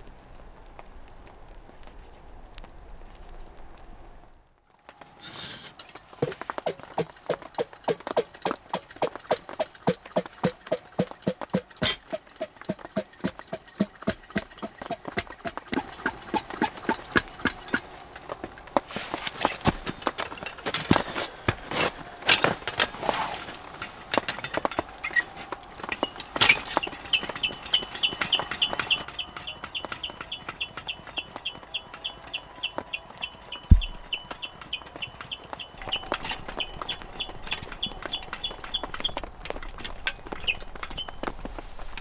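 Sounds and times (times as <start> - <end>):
rapid knocks: 5.8 - 18.0, 23.7 - 41.0.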